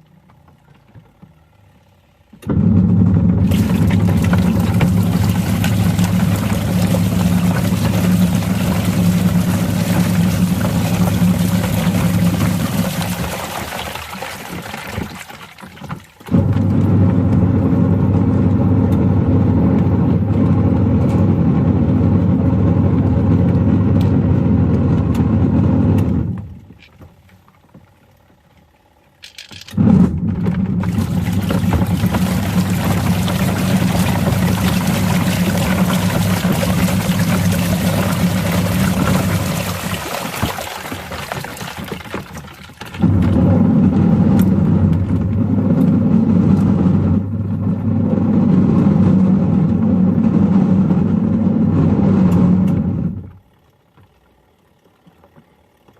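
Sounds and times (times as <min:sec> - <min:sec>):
washing machine motor hum: 0:00.0 - 0:55.9
toys rattling in drum: 0:29.2 - 0:47.2.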